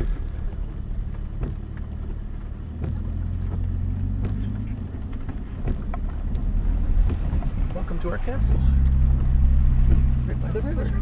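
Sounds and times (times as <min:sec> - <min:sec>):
knocks and clunks of bouncing truck: 0:00.0 - 0:11.0
truck engine running low: 0:00.0 - 0:11.0.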